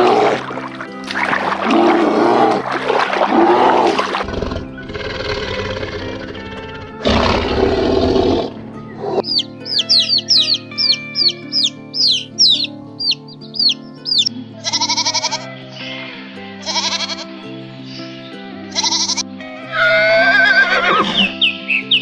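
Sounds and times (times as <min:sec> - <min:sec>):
background music: 0:00.0 - 0:22.0
rough animal call: 0:01.2 - 0:12.7
chick chirping: 0:09.0 - 0:14.3.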